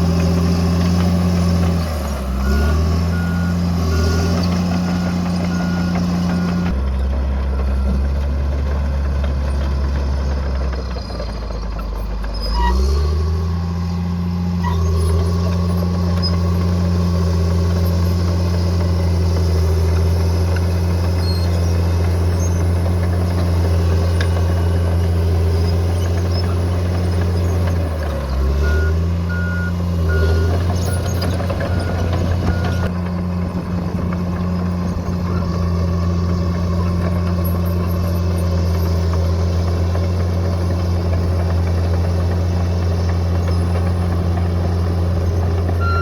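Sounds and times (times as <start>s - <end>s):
bulldozer diesel engine revving: 0.0s - 46.0s
reversing alarm beeping: 2.4s - 6.7s, 28.6s - 32.9s.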